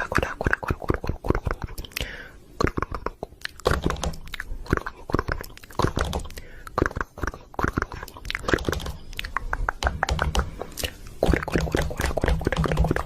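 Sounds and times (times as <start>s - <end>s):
chewing crunchy food: 2.7s - 9.8s.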